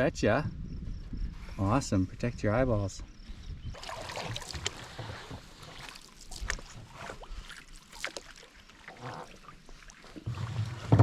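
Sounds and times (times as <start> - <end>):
paddle splashes: 3.8 - 11.0
water drips: 5.8 - 10.8.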